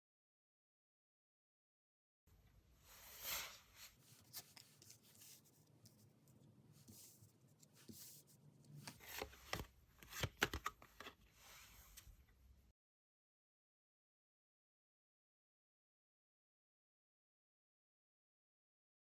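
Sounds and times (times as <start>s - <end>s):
cards being shuffled: 4.1s - 5.5s, 8.7s - 11.2s
card clicks and snaps: 8.9s - 11.1s.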